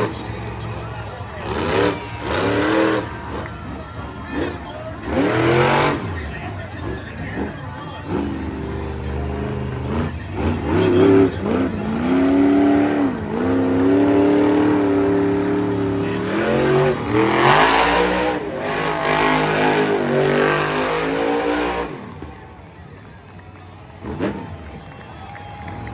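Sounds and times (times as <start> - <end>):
broad rush of noise: 0.0 - 25.9
monster truck engine revving: 0.0 - 25.9.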